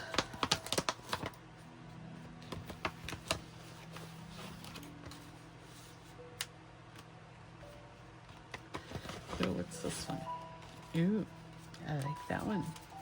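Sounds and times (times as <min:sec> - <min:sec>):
paper clicks and rustles: 0:00.0 - 0:01.4, 0:02.4 - 0:05.8, 0:08.3 - 0:11.0.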